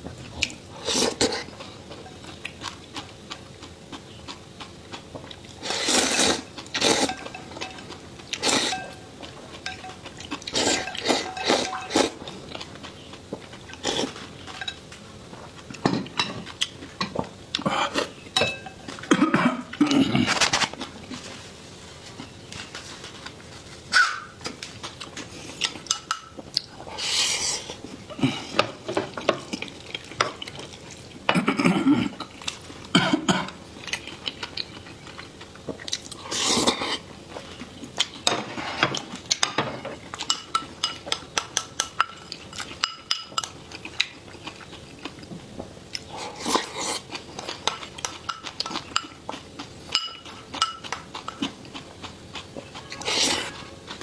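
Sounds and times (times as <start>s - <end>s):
chewing and slurping: 0.2s - 18.2s, 43.4s - 54.0s
cutlery clinking on plates: 7.0s - 7.9s, 8.6s - 10.1s, 10.7s - 12.0s, 18.4s - 19.1s, 49.9s - 51.4s.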